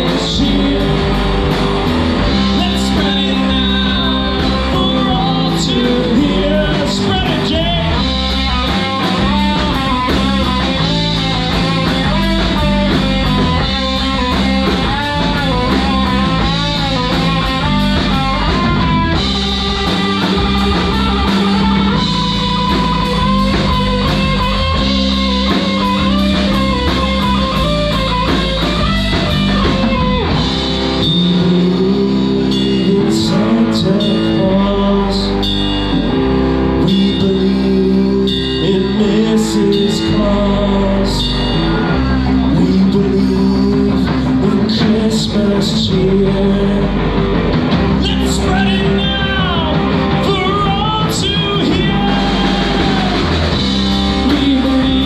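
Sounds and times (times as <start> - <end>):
lead solo line: 0.0 - 33.0, 47.1 - 55.0
rock band playing: 0.0 - 55.0.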